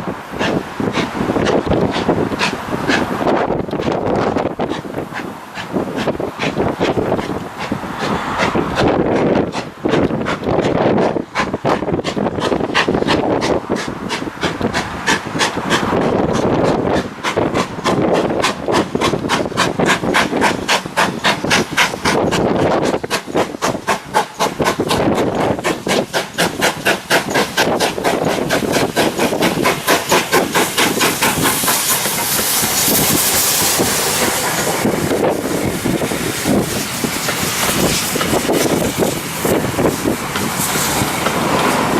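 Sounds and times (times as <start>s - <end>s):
steam hissing: 0.0s - 41.9s
steam locomotive exhaust beats: 0.0s - 41.9s.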